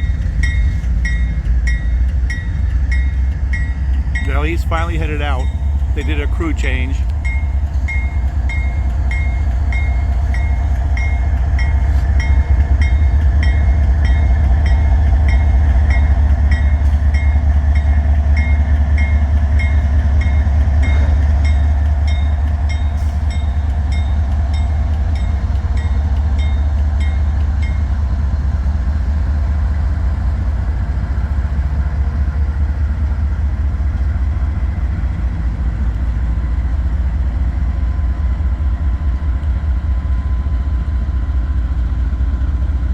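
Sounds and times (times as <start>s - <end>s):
diesel locomotive engine rumble: 0.0s - 42.9s.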